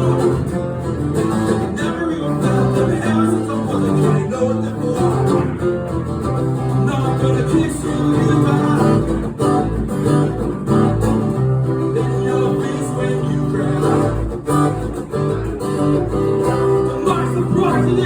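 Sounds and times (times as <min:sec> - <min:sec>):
strummed acoustic guitar: 0:00.0 - 0:18.0.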